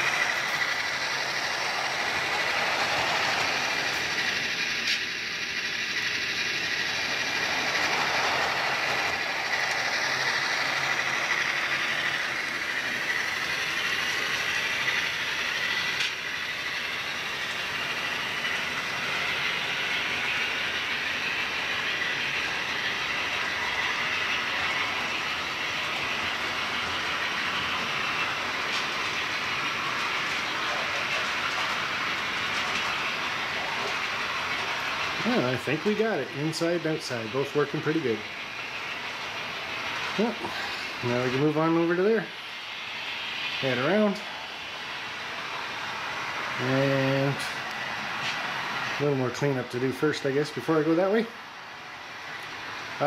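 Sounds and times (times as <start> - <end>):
wheels on rails clickety-clack: 0.0 - 51.4, 52.2 - 53.0.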